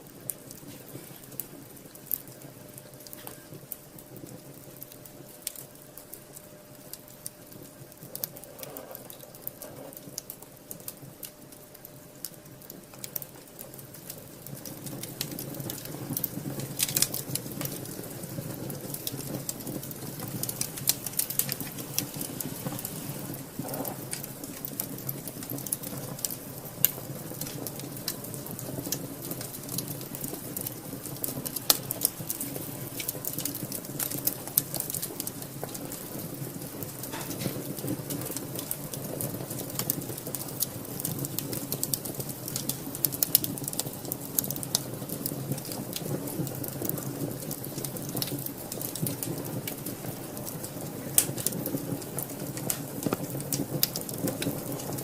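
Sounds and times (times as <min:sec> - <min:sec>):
low rush of flames: 0:00.0 - 0:55.0
wood fire crackling: 0:00.0 - 0:55.0.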